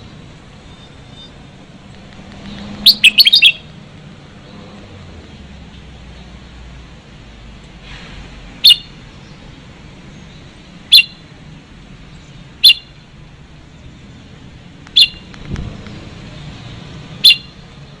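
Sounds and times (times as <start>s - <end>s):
bird giving sharp calls: 2.6s - 3.7s, 8.6s - 9.0s, 10.8s - 11.2s, 12.6s - 13.0s, 14.9s - 15.3s, 17.2s - 17.6s.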